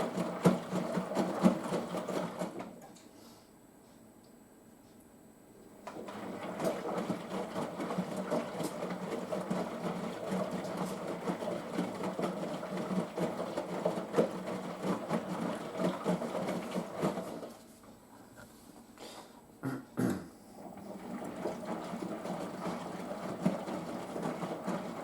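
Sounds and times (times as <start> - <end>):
washing machine motor running: 0.0 - 2.8, 5.8 - 17.8, 20.6 - 25.0
wet laundry sloshing in drum: 0.0 - 2.8, 5.9 - 17.8, 20.6 - 25.0.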